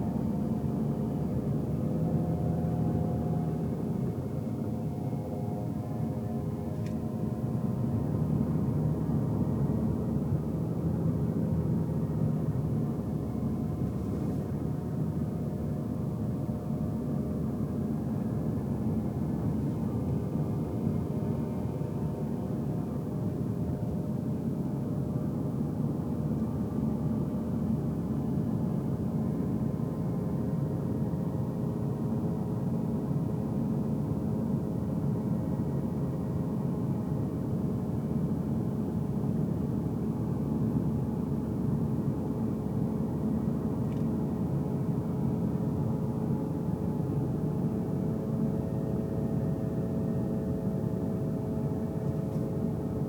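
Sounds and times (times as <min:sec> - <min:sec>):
car road noise from cabin: 0:00.0 - 0:30.0
faint engine hum: 0:00.0 - 0:53.0.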